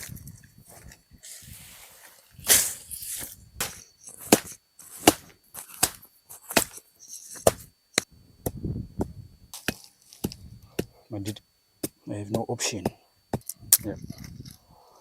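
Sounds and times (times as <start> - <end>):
wood being chopped: 3.6 - 6.8, 7.4 - 8.6, 9.6 - 11.0.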